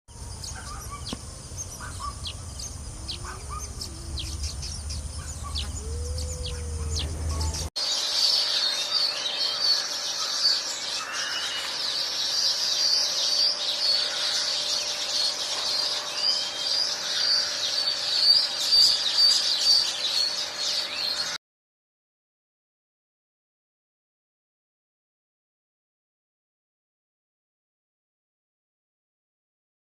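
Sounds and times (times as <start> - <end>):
low hum: 0.1 - 7.7
birds chirping: 0.1 - 21.4.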